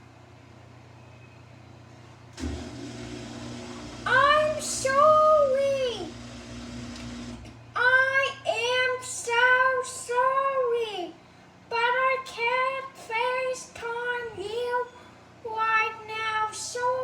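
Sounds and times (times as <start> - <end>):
child singing high notes: 4.1 - 6.2, 7.8 - 17.0.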